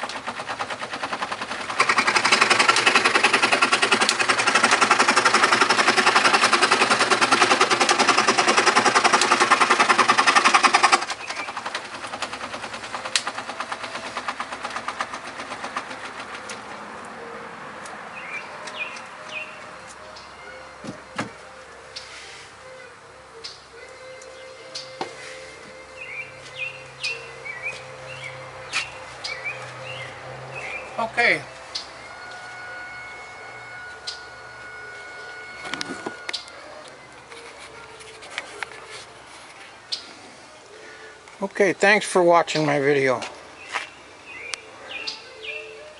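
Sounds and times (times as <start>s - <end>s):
pedal scroll saw clattering: 0.0s - 16.5s.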